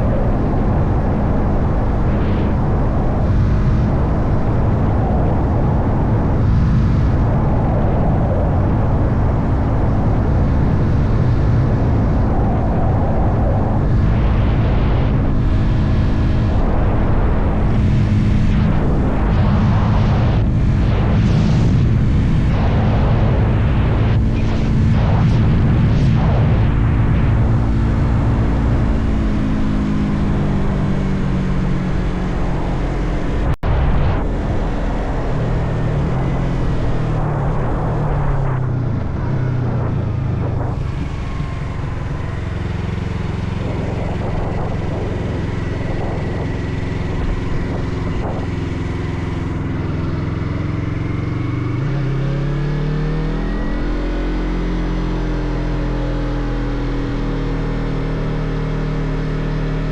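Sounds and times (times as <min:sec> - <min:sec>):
wind rush: 0:00.0 - 0:57.7
motorcycle engine running: 0:34.2 - 0:59.9.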